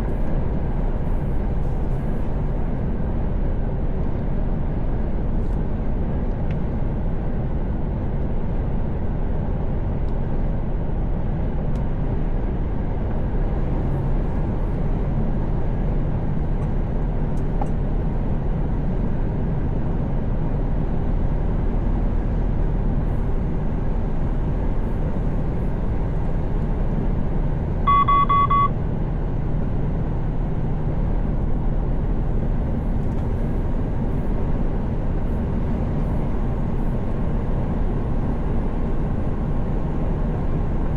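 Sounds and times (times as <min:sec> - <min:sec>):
truck engine and road noise: 0:00.0 - 0:40.9
short electronic beep: 0:27.9 - 0:28.8.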